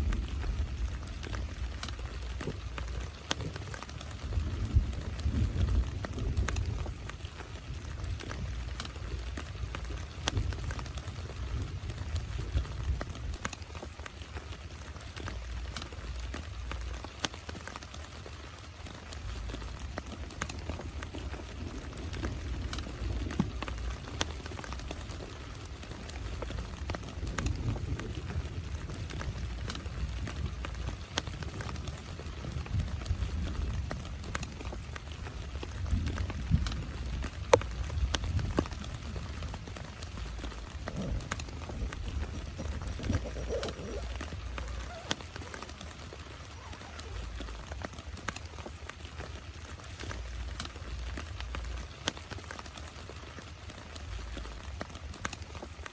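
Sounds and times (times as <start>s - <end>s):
raindrops striking: 0.0s - 55.9s
steady low rumble: 35.9s - 45.8s.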